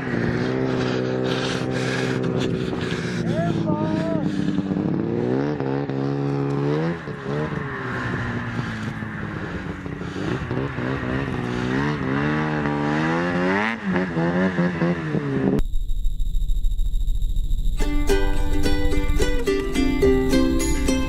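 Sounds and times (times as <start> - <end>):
snowmobile engine revving: 0.0 - 15.6
music: 17.8 - 21.0.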